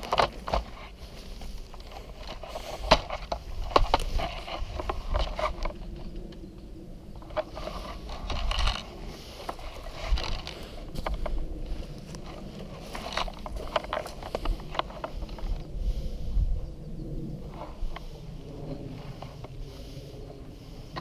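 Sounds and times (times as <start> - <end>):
handling clicks and scrapes: 0.0 - 6.5, 7.1 - 15.7
low rumble: 0.0 - 21.0.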